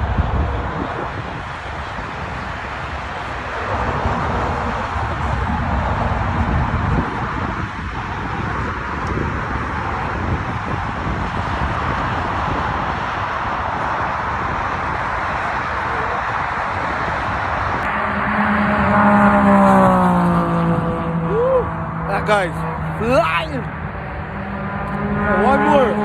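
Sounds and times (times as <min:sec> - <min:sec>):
rushing wind and road noise: 0:00.0 - 0:26.0
dirt bike engine passing: 0:24.4 - 0:26.0.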